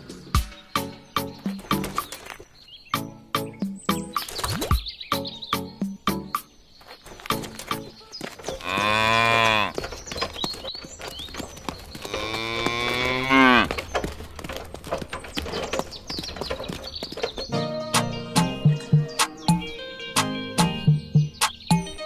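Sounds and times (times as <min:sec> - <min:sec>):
bird chirps: 0:00.0 - 0:22.0
cow mooing: 0:08.6 - 0:09.8, 0:12.0 - 0:13.8.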